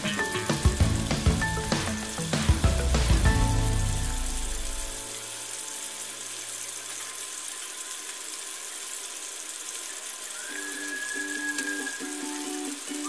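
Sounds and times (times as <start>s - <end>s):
chicken frying in oil: 0.0s - 13.0s
background music with whistled melody: 10.2s - 13.0s.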